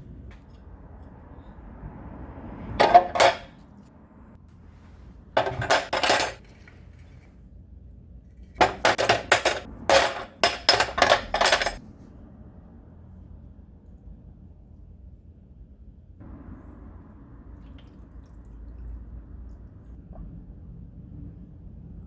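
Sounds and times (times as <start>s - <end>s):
small metal parts clinking: 5.4s - 6.5s, 8.6s - 11.8s.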